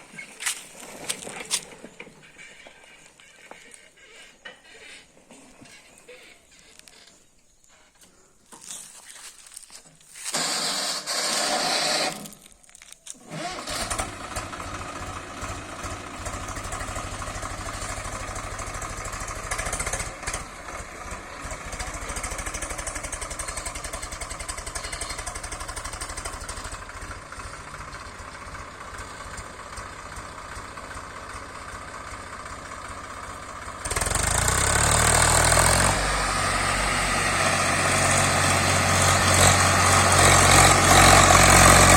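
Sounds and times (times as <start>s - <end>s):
tractor diesel engine starting: 0.0s - 8.2s, 10.2s - 41.9s
tractor engine idling: 0.0s - 8.7s, 9.7s - 41.9s.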